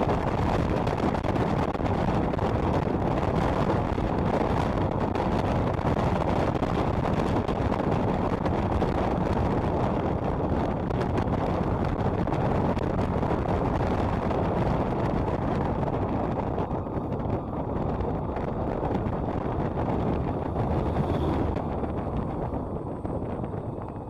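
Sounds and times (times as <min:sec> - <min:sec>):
road noise: 0:00.0 - 0:24.0
wind on microphone: 0:00.0 - 0:24.0
motorcycle engine: 0:15.9 - 0:24.0.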